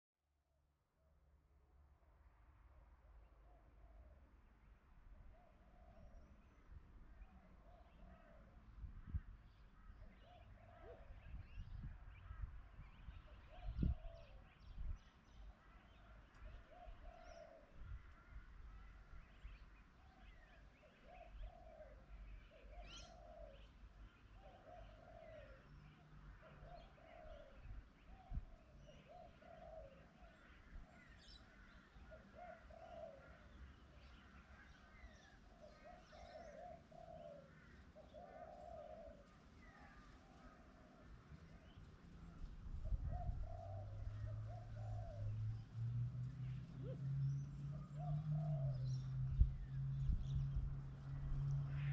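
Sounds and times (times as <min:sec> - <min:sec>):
faint pigeon cooing: 0:10.0 - 0:11.4, 0:13.3 - 0:14.4, 0:15.6 - 0:18.4, 0:20.3 - 0:45.6, 0:46.4 - 0:49.1.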